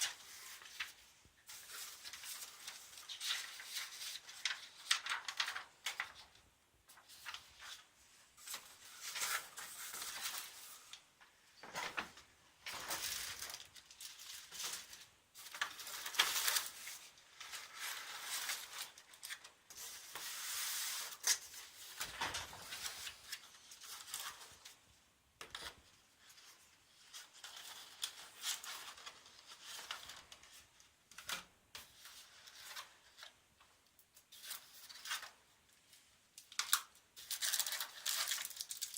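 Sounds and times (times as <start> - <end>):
packaging rustling and tearing: 36.6 - 38.9.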